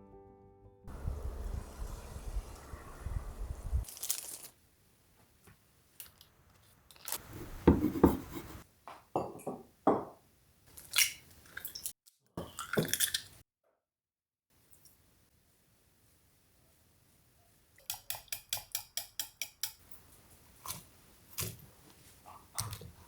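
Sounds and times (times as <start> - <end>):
background music: 0.0 - 0.9
household objects clicking and knocking: 7.0 - 10.2.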